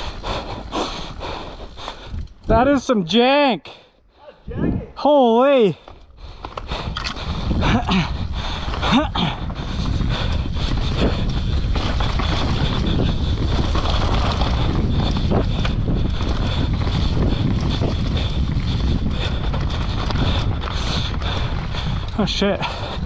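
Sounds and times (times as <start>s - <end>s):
wind on microphone: 4.4s - 5.0s, 6.2s - 23.0s
bike rolling over rough trail: 5.8s - 23.0s.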